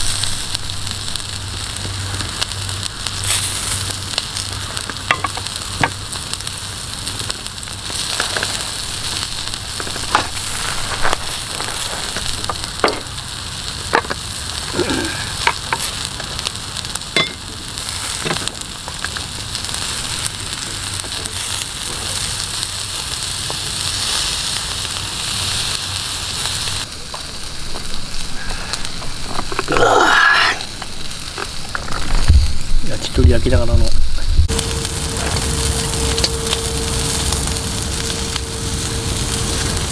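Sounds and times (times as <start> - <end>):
fire pops and crackles: 0.0 - 39.9
skewers sizzling over fire: 0.0 - 39.9.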